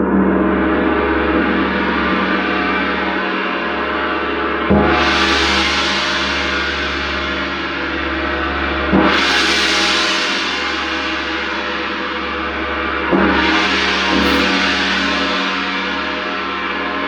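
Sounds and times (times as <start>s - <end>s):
gong strokes ringing: 13.2s - 17.0s.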